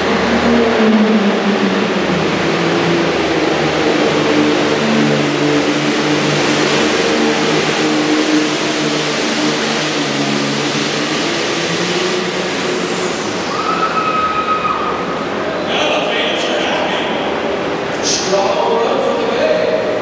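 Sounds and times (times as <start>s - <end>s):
diesel engine droning under load: 0.0s - 18.2s
high falling whine: 0.0s - 18.3s
steady whistle: 13.4s - 15.1s.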